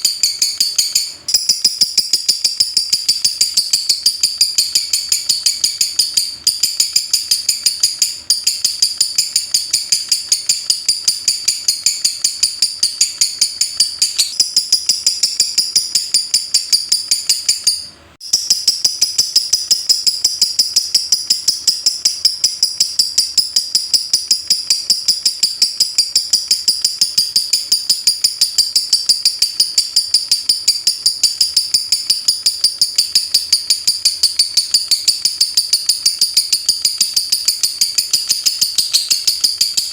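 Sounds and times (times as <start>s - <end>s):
lovebird rapid sharp chips: 0.0s - 39.9s.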